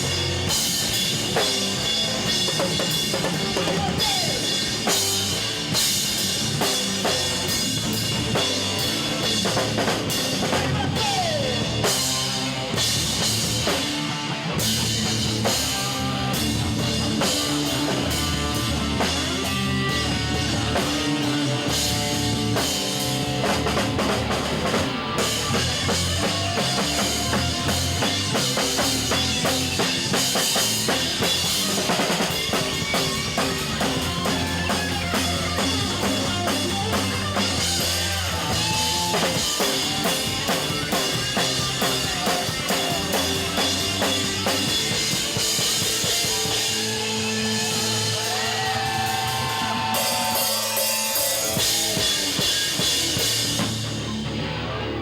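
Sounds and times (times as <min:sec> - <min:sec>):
drum kit beat: 0:00.0 - 0:54.6
electric guitar: 0:00.0 - 0:55.0
live rock band instrumental: 0:00.0 - 0:55.0.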